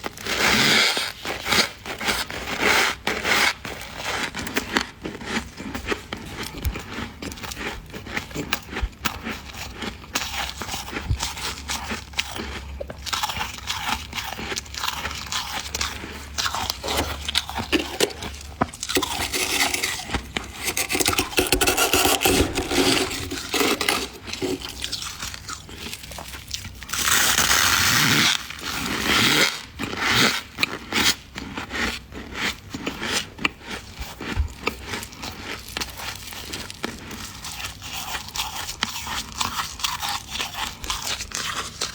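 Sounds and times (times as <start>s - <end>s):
frost crunching in the mouth: 12.2s - 28.0s.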